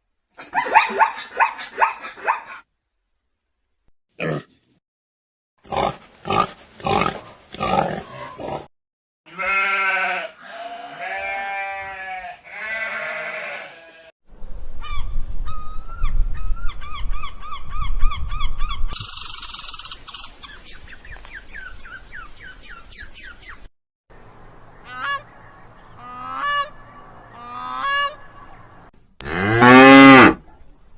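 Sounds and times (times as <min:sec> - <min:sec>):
goat bleats: 0:09.3 - 0:14.1
high-pitched animal calls: 0:16.8 - 0:20.8, 0:26.0 - 0:28.7
rapid clicking calls: 0:19.0 - 0:23.6.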